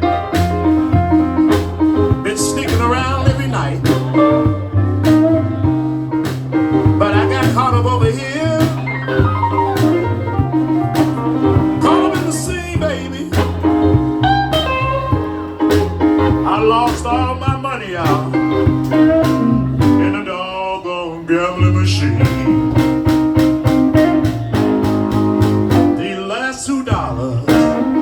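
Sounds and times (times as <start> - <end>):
drum hits: 0.0 - 20.1, 22.2 - 26.0, 27.0 - 28.0
bass line: 0.0 - 20.3, 21.6 - 26.3, 26.9 - 28.0
guitar bending notes: 0.0 - 20.3, 21.6 - 26.2, 26.9 - 28.0
person singing: 2.0 - 5.9, 6.7 - 23.0, 25.9 - 28.0.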